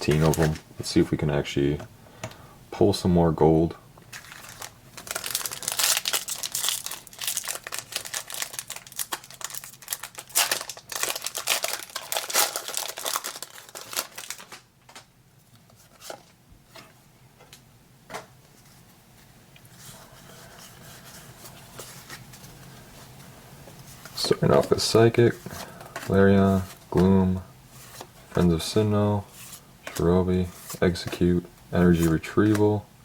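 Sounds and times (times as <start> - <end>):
foil wrapper crinkling and tearing: 4.1 - 15.1.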